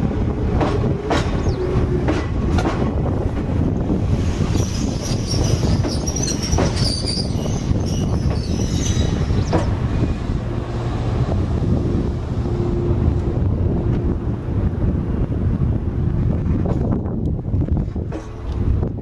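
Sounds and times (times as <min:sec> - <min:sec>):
train rumbling: 0:00.0 - 0:19.0
high brake squeal: 0:04.6 - 0:09.6.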